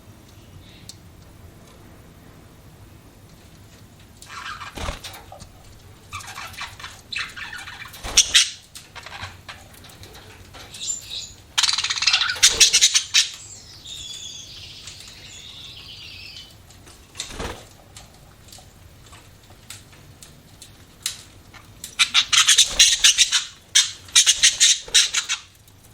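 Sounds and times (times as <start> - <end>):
soft bird warble: 4.2 - 18.0
budgerigars chirping and chattering: 4.3 - 4.9, 6.1 - 9.4, 10.7 - 16.5, 22.0 - 25.6.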